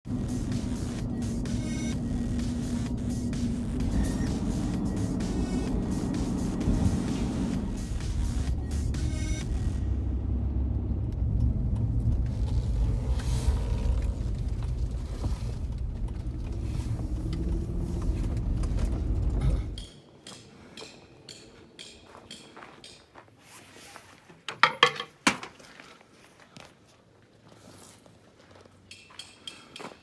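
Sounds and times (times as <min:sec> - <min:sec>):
loud low rumble: 0:00.0 - 0:19.8.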